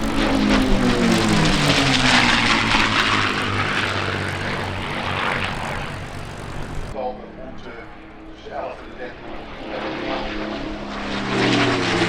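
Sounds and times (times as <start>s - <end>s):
propeller plane flying past: 0.0s - 7.0s, 7.9s - 12.0s.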